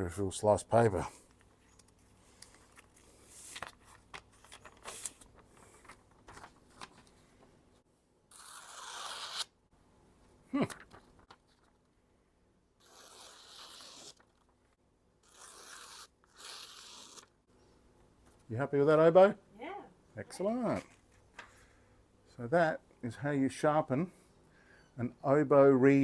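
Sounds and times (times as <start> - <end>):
paper being sliced: 8.3 - 9.5, 12.8 - 14.4, 15.2 - 17.3.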